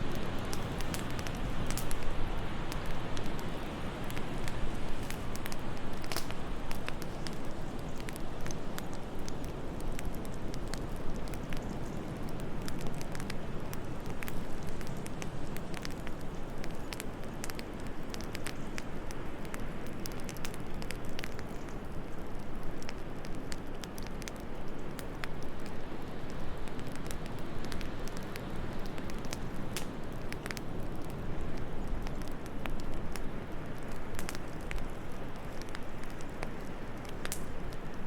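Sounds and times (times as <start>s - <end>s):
low rush of wind: 0.0s - 20.8s
wood fire crackling and popping: 0.0s - 38.0s.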